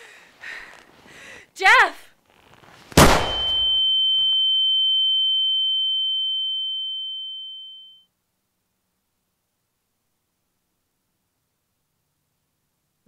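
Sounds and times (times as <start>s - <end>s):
pistol shot: 3.0s - 3.7s
high-pitched ringing tone: 3.3s - 8.1s.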